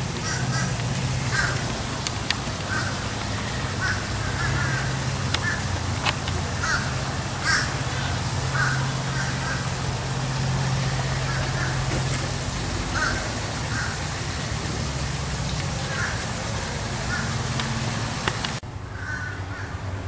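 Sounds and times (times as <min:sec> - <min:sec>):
bird cawing: 0:00.0 - 0:10.0, 0:11.0 - 0:12.2, 0:12.8 - 0:14.2, 0:15.8 - 0:18.0, 0:18.9 - 0:19.9.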